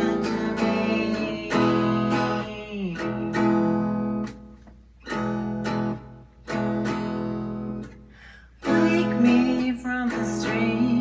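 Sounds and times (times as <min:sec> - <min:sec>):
person singing: 0:00.0 - 0:03.7, 0:08.6 - 0:11.0
acoustic guitar strumming: 0:00.0 - 0:11.0.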